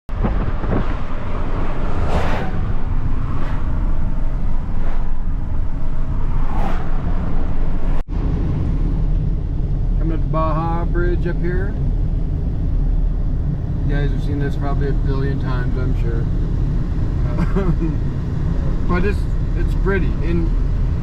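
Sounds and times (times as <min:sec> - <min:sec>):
wind noise: 0:00.1 - 0:10.3
vehicle rumble: 0:00.1 - 0:21.0
broad whooshes: 0:00.2 - 0:08.5.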